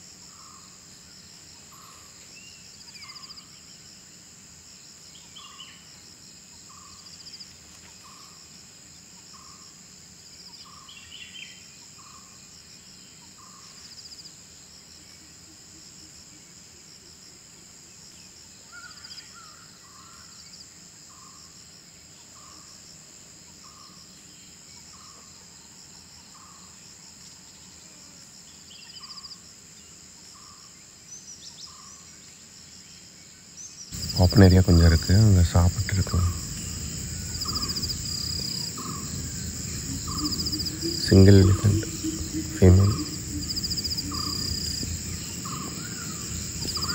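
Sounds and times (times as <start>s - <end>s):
high insect drone with trills: 0.0s - 46.9s
other bird calls: 34.0s - 46.9s.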